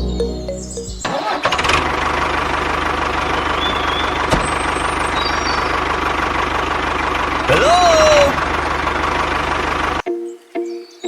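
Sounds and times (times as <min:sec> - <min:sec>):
background music: 0:00.0 - 0:01.3.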